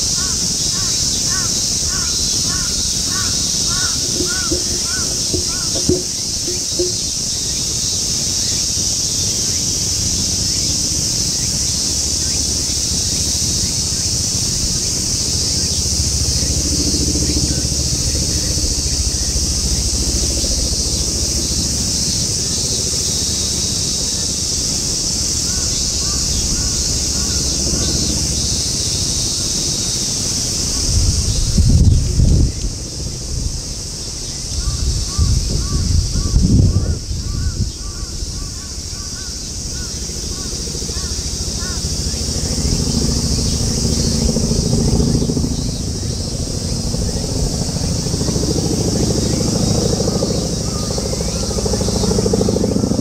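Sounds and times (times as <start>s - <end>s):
low wind rumble: 0.0s - 7.9s, 10.0s - 53.0s
crows cawing: 0.2s - 6.9s, 34.6s - 41.8s.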